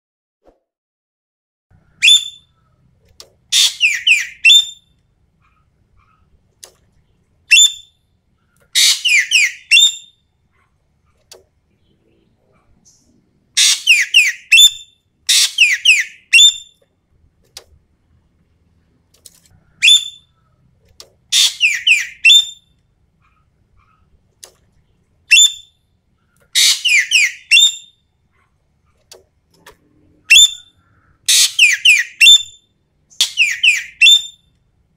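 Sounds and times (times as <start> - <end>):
bird whistled calls: 1.9 - 2.6, 3.6 - 4.8, 7.5 - 7.9, 8.8 - 10.2, 13.6 - 16.8, 19.8 - 20.4, 21.4 - 22.6, 26.6 - 28.0, 30.3 - 32.6, 33.2 - 34.4.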